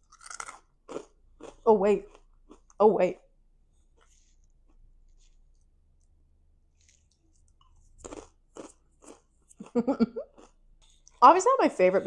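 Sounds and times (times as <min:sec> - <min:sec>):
crunchy chip crunching: 0:00.0 - 0:02.8, 0:06.7 - 0:10.6.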